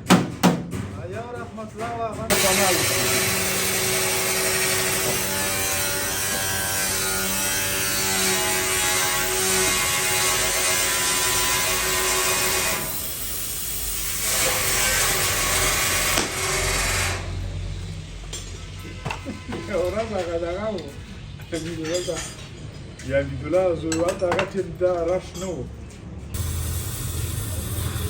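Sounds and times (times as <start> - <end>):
power tool on sheet metal: 2.3 - 17.8, 26.4 - 28.0.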